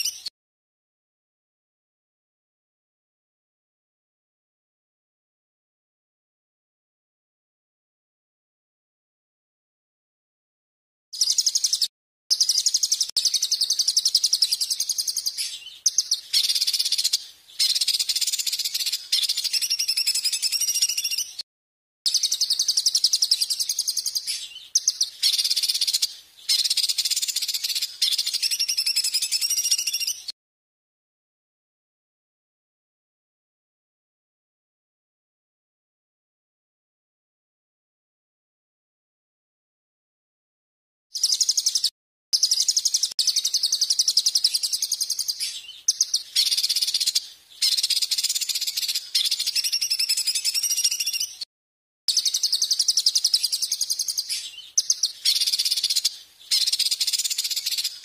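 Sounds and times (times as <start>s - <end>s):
songbird singing buzzy trills: 0.0s - 0.3s, 11.2s - 21.4s, 22.1s - 30.4s, 41.2s - 51.5s, 52.1s - 58.0s.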